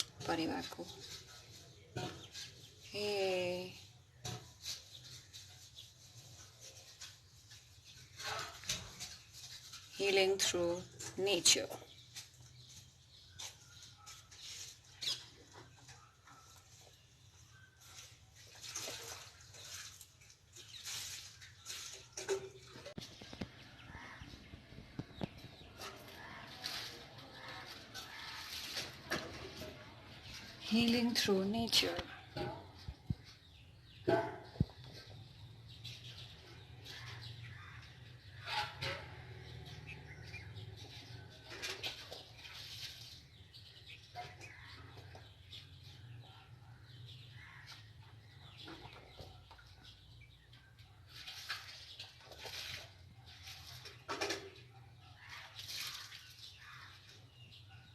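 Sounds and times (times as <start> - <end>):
rustles: 0.0 - 15.8, 16.5 - 24.2, 24.8 - 31.3, 35.8 - 46.2
pigeons rustling at a nest: 12.0 - 24.2.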